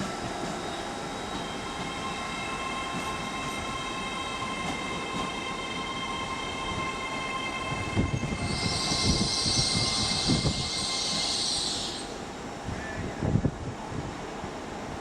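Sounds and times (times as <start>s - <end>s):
electric train whine: 0.0s - 12.7s
train low rumble: 0.0s - 15.0s
hiss: 8.4s - 12.3s.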